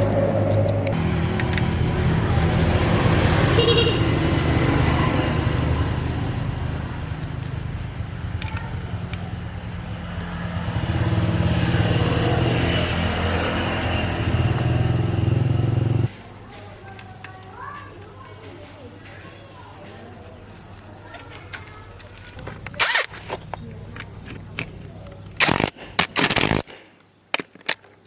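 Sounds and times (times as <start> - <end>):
truck engine running: 0.0 - 16.1.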